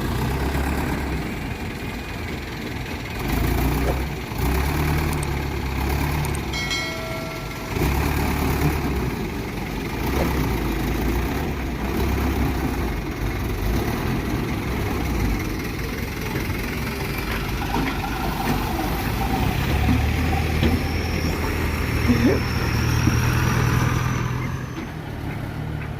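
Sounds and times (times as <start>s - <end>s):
diesel truck engine running: 0.0s - 25.9s
short high tone: 6.6s - 8.2s.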